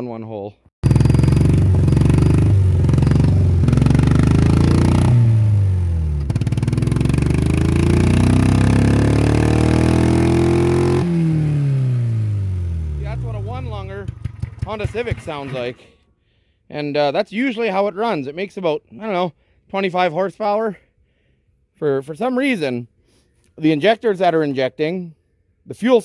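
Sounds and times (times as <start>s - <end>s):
car engine revving: 0.8s - 15.8s.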